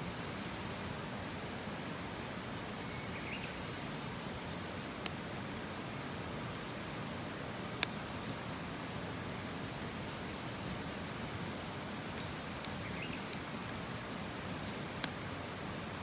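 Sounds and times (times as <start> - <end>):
campfire hissing: 0.0 - 16.0
fire popping: 1.5 - 16.0
bird chirp: 2.6 - 3.8, 12.8 - 13.3.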